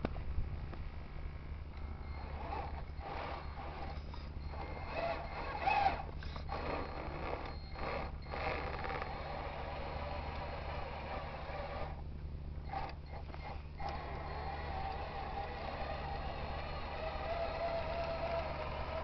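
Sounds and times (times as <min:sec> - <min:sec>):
steady low hum: 0:00.0 - 0:19.0
model truck drivetrain whirring: 0:01.8 - 0:12.0, 0:12.6 - 0:19.0.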